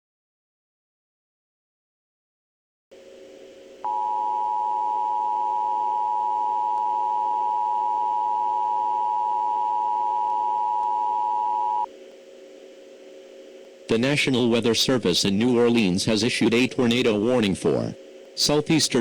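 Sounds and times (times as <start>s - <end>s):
faint low hum: 3.0s - 19.0s
two-tone alert signal: 3.9s - 11.9s.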